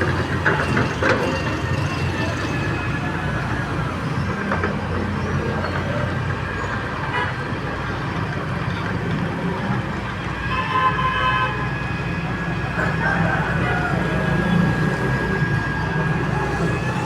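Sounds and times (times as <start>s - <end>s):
diesel excavator engine running: 0.0s - 10.3s, 11.8s - 17.0s
street traffic: 0.0s - 17.0s
vehicle horn: 10.4s - 11.7s.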